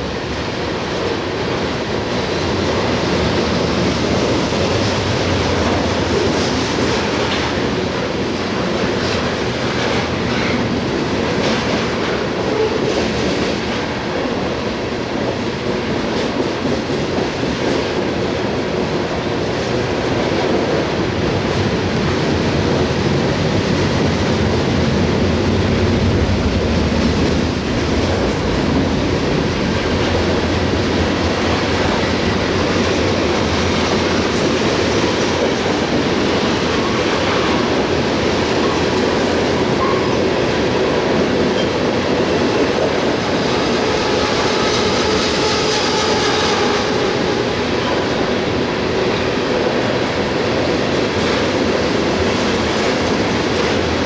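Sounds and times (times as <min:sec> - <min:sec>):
train wheels clattering over rail joints: 0:19.4 - 0:54.0.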